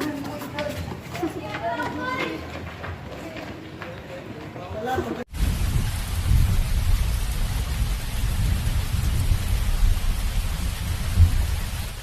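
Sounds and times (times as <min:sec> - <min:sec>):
heavy rain hissing: 0:05.3 - 0:12.0
thunder rumbling: 0:05.3 - 0:12.0
wind rumbling: 0:05.3 - 0:12.0.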